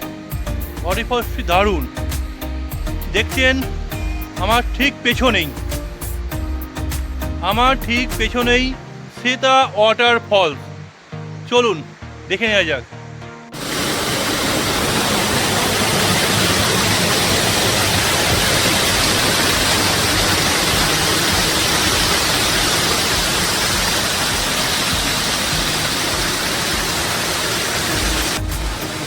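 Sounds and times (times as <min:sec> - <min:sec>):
waterfall rushing: 0:13.5 - 0:29.0.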